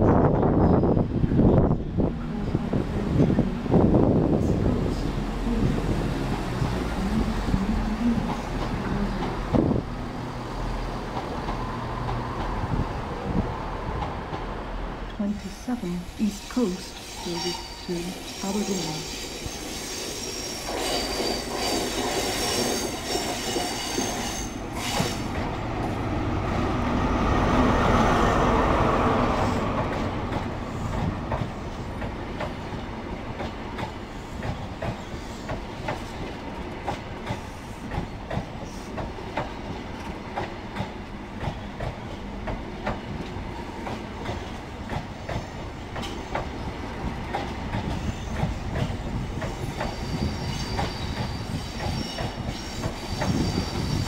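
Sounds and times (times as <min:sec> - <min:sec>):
diesel train passing: 0:00.0 - 0:54.0
wheel squeal: 0:16.8 - 0:25.3, 0:49.5 - 0:54.0.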